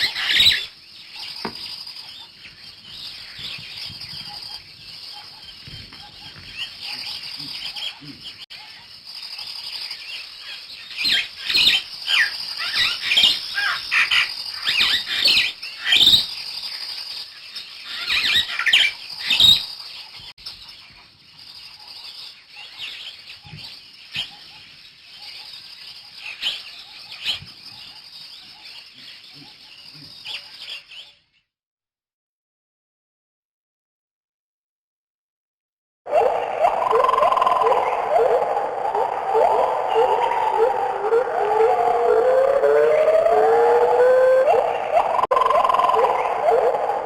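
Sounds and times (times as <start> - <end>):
small birds chirping: 0.0 - 31.5.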